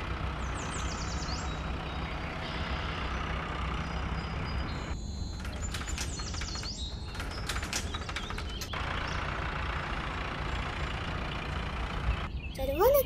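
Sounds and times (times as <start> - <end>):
sharp clicks and high chirps: 4.9 - 8.8.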